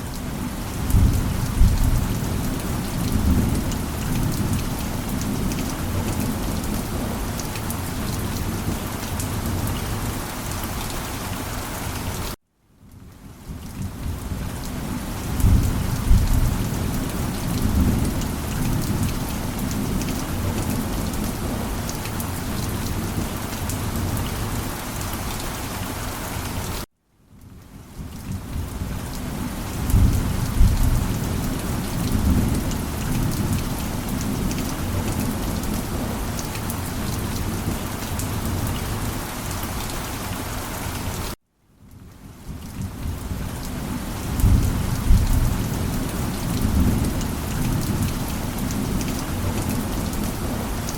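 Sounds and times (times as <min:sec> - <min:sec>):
heavy rain: 0:00.0 - 0:50.9
thunder rumbling: 0:00.8 - 0:04.6, 0:15.3 - 0:21.7, 0:29.8 - 0:36.3, 0:44.2 - 0:50.6.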